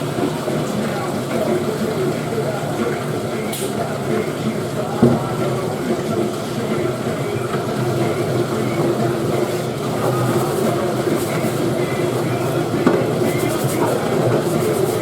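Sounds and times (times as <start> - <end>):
dishwasher running: 0.0 - 15.0.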